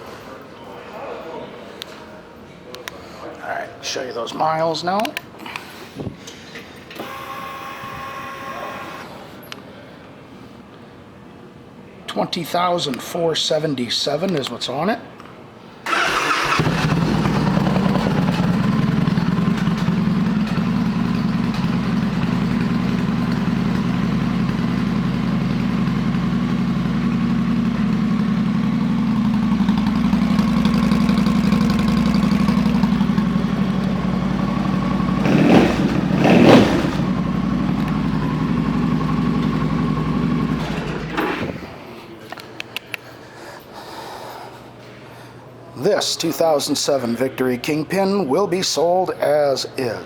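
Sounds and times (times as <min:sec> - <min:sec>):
motorcycle engine idling and revving: 0:15.9 - 0:41.6.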